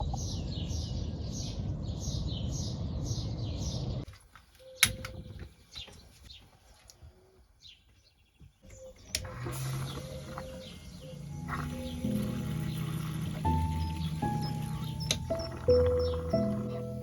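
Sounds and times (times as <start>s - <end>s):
sharp click: 4.8s - 5.2s.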